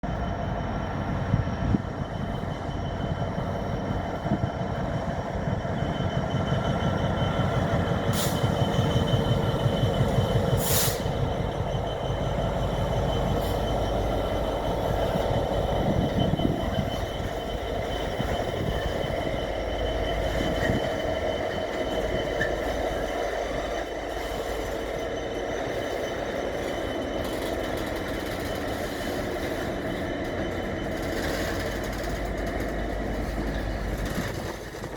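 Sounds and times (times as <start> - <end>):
diesel locomotive engine throb: 0.0 - 34.9
wagons rolling on rails: 19.8 - 34.9.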